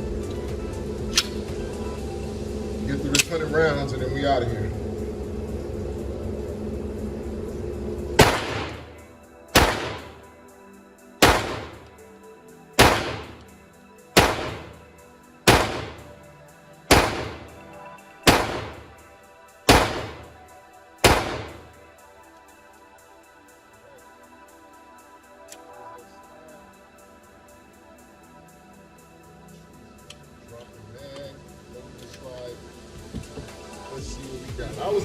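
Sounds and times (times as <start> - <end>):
pistol shots with echo: 8.2 - 10.2, 11.2 - 11.9, 12.8 - 13.5, 14.2 - 14.9, 15.5 - 16.1, 16.9 - 17.6, 18.2 - 19.0, 19.7 - 20.3, 21.0 - 21.7.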